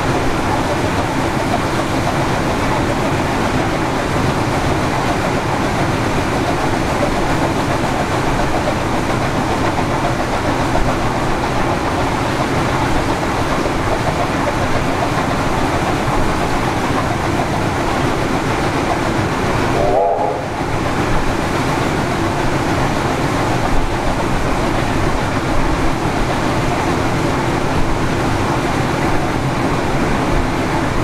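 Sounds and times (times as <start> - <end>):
wheels rumbling and rattling on rails: 0.0 - 31.0.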